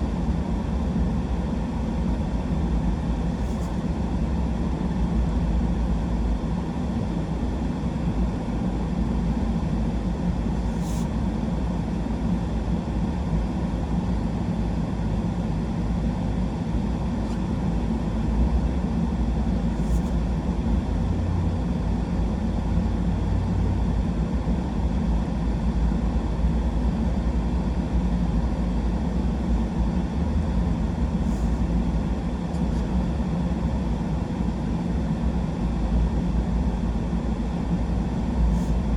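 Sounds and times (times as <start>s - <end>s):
truck engine and road noise: 20.5s - 25.2s.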